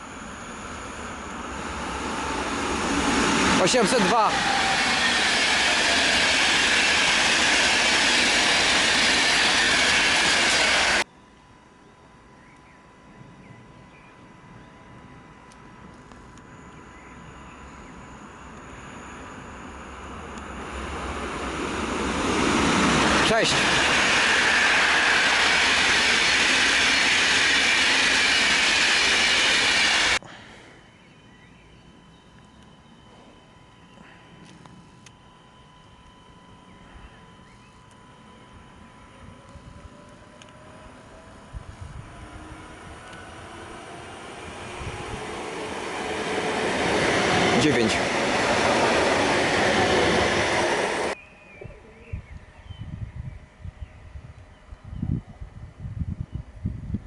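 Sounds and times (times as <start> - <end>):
train passing on rails: 0.0 - 11.1, 14.9 - 33.5, 35.5 - 51.2.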